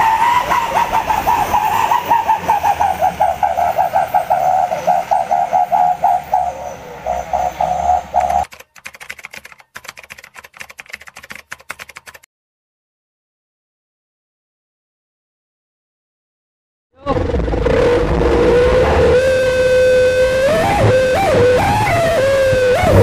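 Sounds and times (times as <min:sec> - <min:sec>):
truck whistle exhaust wavering: 0:00.0 - 0:06.6, 0:17.9 - 0:23.0
faint rapid ticking: 0:08.4 - 0:12.2.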